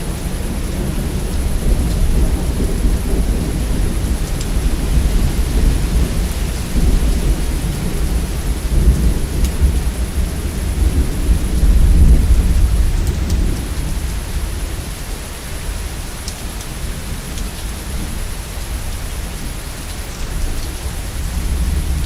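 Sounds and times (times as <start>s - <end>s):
rolling thunder: 0.0s - 15.8s, 20.4s - 22.0s
steady rain: 0.0s - 22.0s.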